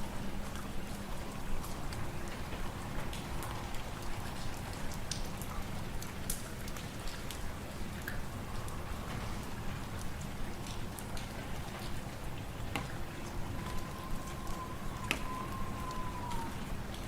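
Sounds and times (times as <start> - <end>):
low wind rumble: 6.9 - 17.0.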